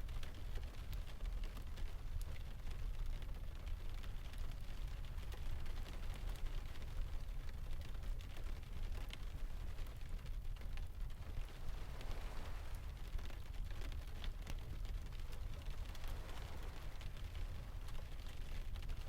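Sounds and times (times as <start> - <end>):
fire crackles and ticks: 0.0 - 19.0
soft hiss: 8.1 - 19.0
deep rumble: 11.0 - 19.0.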